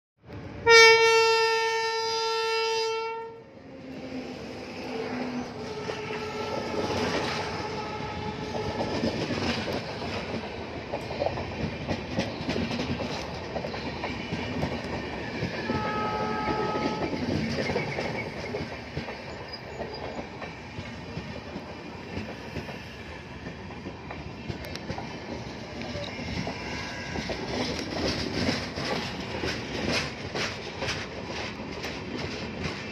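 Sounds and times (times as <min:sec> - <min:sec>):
train rumbling past: 0:00.2 - 0:32.9
locomotive horn blast: 0:00.6 - 0:03.4, 0:05.5 - 0:09.1, 0:15.7 - 0:17.2
wheels clacking over rail joints: 0:04.6 - 0:32.9.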